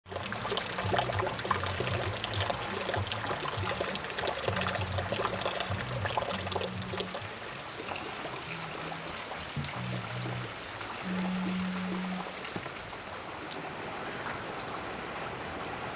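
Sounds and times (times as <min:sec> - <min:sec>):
raindrops striking close: 0:00.0 - 0:15.9
low hum: 0:00.1 - 0:12.5.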